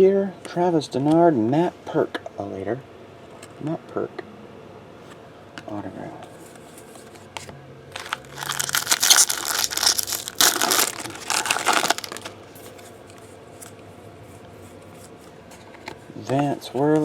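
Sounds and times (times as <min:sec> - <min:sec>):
plastic wrapper crinkling and tearing: 0:07.9 - 0:12.4.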